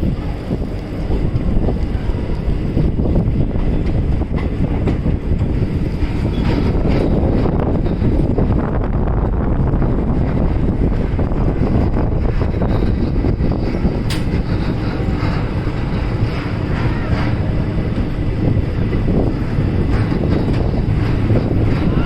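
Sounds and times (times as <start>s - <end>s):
train rumbling: 0.0s - 22.0s
wind buffeting microphone: 0.0s - 22.0s
sharp click: 14.1s - 14.4s.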